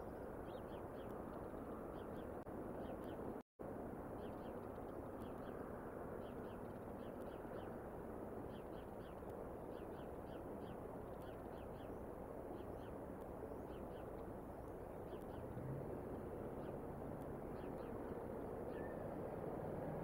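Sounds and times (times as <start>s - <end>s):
distant birds calling: 4.2s - 20.0s.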